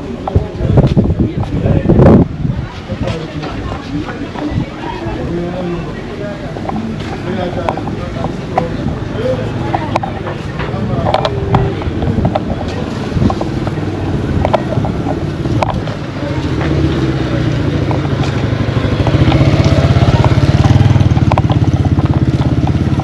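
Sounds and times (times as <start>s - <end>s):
vehicle engine running: 5.2s - 23.0s.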